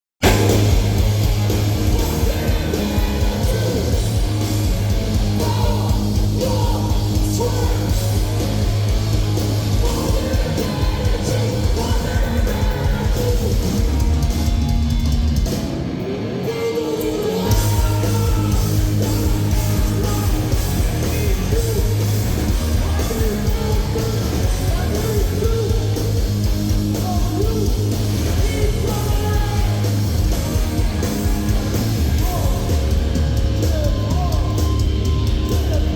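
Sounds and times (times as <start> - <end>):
distorted guitar: 0.2 - 35.9
heavy rock band playing live: 0.2 - 35.9
person yelling vocals: 5.3 - 8.0.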